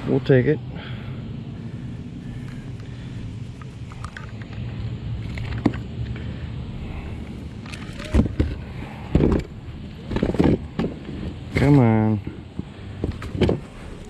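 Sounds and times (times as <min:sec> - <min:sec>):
steady low hum: 0:00.0 - 0:14.0
sharp knocks and thumps: 0:08.0 - 0:11.4, 0:12.5 - 0:13.7.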